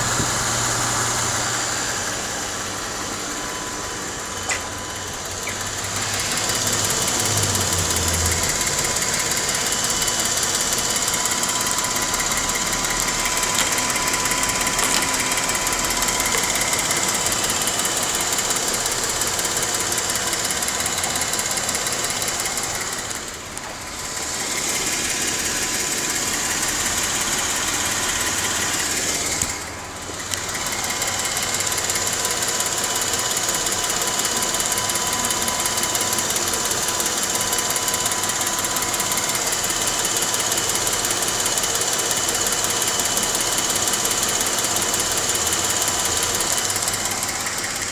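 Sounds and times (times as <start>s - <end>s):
car engine running: 0.0s - 47.9s
rapid engine ticking: 0.0s - 47.9s.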